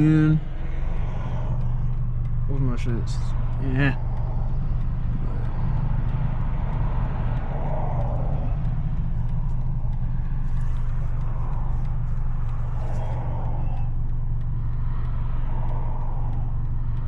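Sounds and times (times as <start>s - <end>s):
car exhaust droning: 0.0s - 17.0s
road noise: 0.0s - 17.0s.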